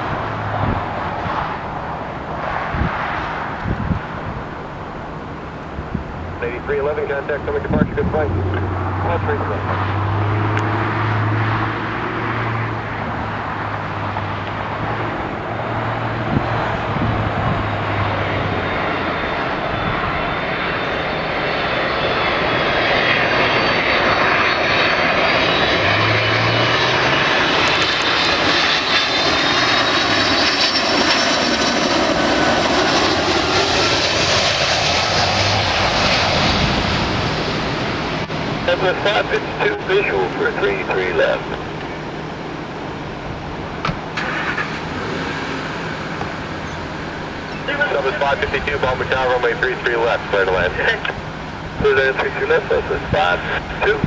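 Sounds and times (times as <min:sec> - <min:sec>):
high engine whine: 0:00.0 - 0:54.0
jet engines roaring: 0:00.0 - 0:54.0.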